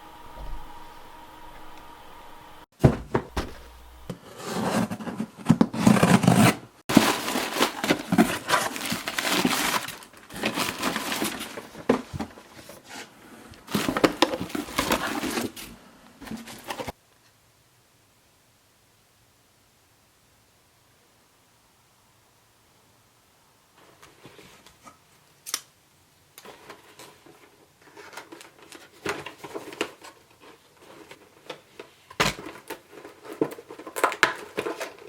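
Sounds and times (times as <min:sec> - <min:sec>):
packaging rustling and crinkling: 0:02.8 - 0:17.0, 0:26.4 - 0:35.0.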